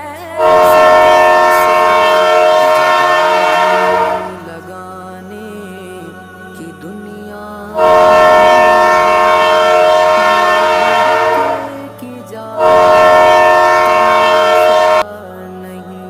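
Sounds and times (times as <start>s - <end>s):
train horn blasts: 0.4s - 4.6s, 7.8s - 12.0s, 12.6s - 15.0s.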